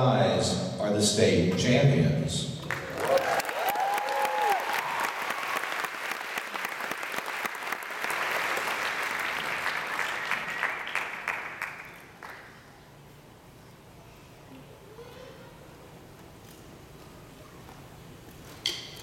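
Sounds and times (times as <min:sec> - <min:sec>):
audience applauding: 0:02.6 - 0:12.6.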